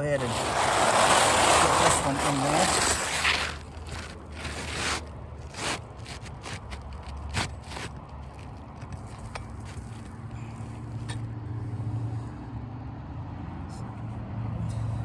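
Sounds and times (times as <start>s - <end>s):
shingle scraping and rustling: 0.0s - 11.1s.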